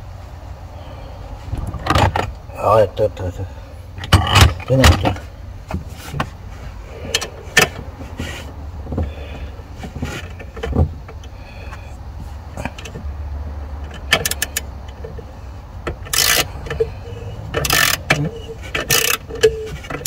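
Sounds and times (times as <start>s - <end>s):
steady low rumble: 0.0s - 18.7s
hand tools clicking and jangling: 16.0s - 20.0s.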